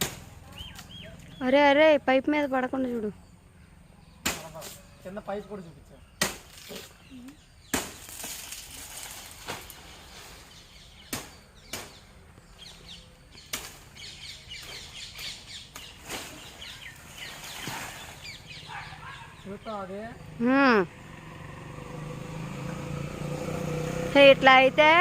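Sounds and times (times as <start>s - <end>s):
machete chopping coconuts: 0.0s - 1.0s, 4.2s - 4.8s, 6.2s - 7.0s, 7.6s - 9.8s, 11.0s - 12.1s, 13.4s - 13.9s.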